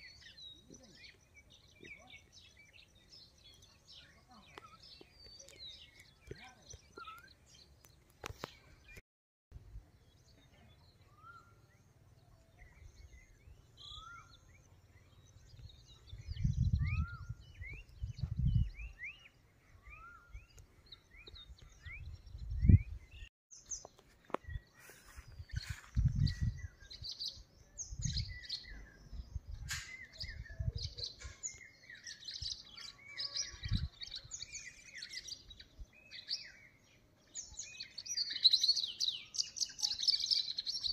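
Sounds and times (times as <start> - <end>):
chorus of birds chattering: 0.0 - 9.0, 10.0 - 16.6, 24.4 - 40.9.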